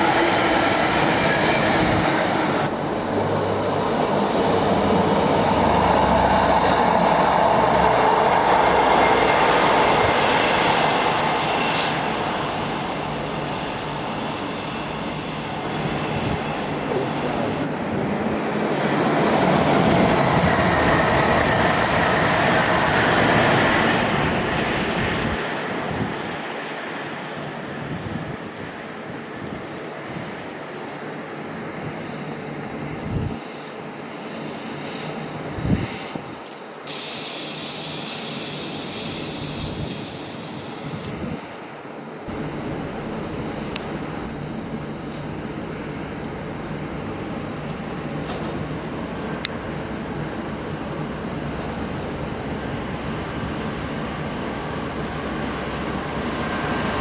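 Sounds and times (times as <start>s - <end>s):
train wheels running on track: 0.0s - 27.8s, 36.5s - 57.0s
wind buffeting microphone: 0.0s - 30.6s, 31.7s - 33.5s, 35.4s - 36.4s, 38.4s - 41.8s.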